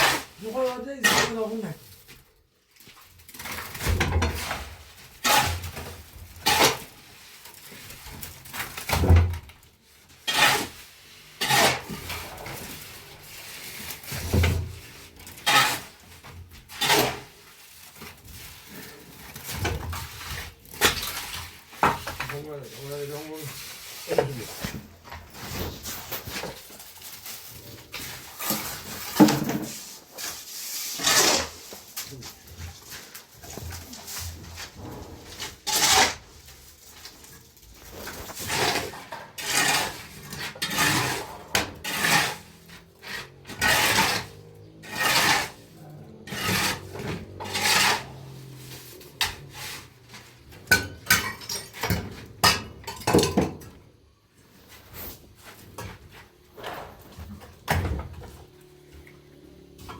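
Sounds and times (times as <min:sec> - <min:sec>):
rough scraping strokes: 0:10.2 - 0:52.4.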